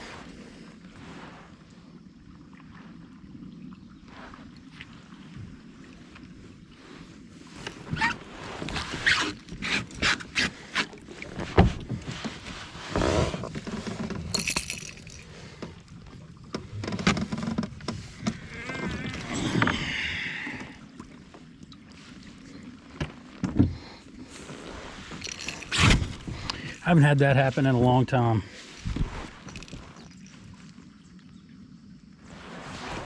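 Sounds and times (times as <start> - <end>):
fishing gear clicking and knocking: 13.0 - 18.4, 25.1 - 26.9, 28.7 - 30.5
rustling hissing: 23.8 - 30.7, 32.2 - 33.0.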